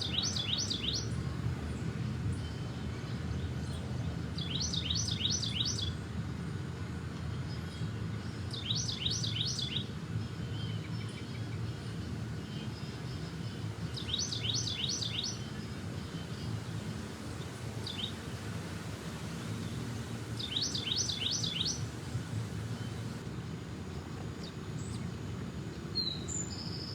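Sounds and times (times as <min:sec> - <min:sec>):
songbird singing: 0:00.0 - 0:06.0, 0:07.2 - 0:26.9.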